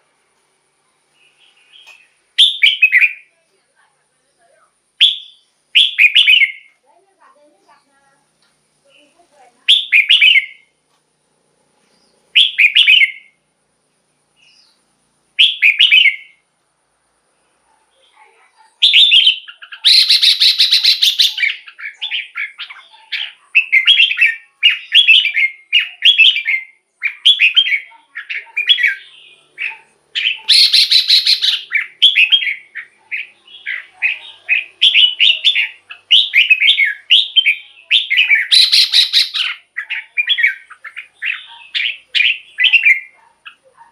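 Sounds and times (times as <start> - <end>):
bird singing warbled phrases: 1.1 - 3.5, 5.0 - 6.8, 8.9 - 10.8, 11.9 - 13.4, 14.3 - 16.5, 17.9 - 43.9
harsh rasping bird call: 18.8 - 43.6.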